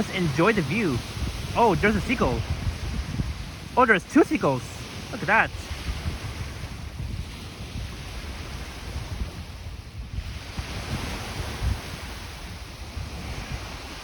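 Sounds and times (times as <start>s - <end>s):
waves washing onto beach: 0.0s - 14.0s
wind rumbling on microphone: 0.0s - 14.0s.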